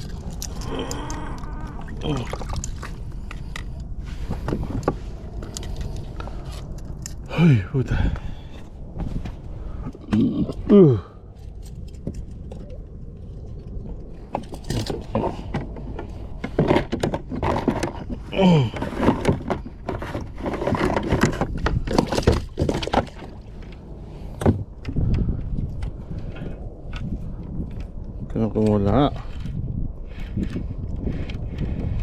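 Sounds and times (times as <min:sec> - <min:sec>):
low rumble: 0:00.0 - 0:20.5, 0:21.1 - 0:32.0
grunt-like vocal sound: 0:10.1 - 0:11.2.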